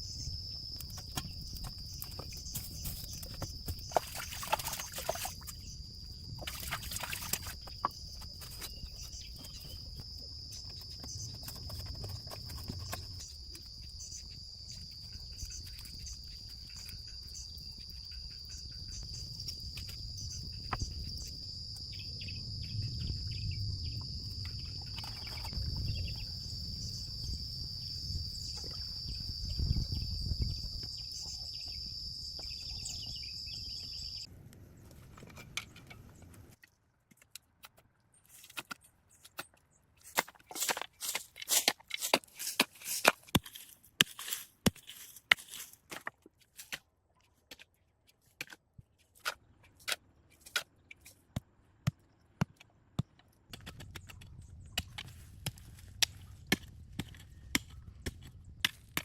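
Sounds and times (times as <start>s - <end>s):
insects buzzing: 0.0s - 34.3s.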